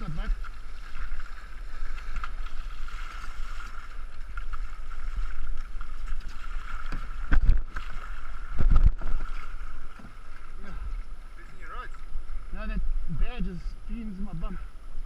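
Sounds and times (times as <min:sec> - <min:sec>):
paddles splashing: 0:00.0 - 0:15.0
water rushing: 0:00.0 - 0:15.0.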